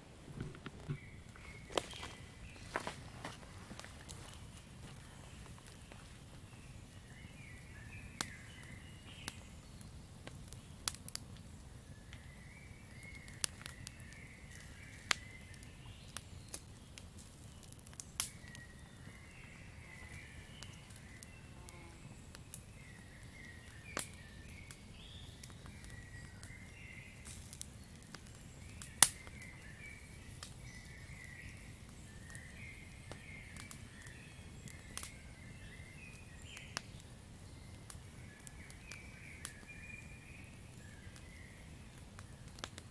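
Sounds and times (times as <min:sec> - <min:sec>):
campfire crackling: 0:00.0 - 0:42.9.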